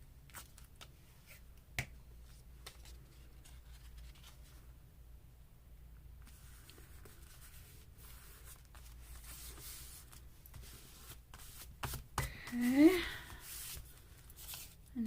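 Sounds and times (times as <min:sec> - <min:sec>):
paper rubbing and rustling: 0:06.3 - 0:14.8.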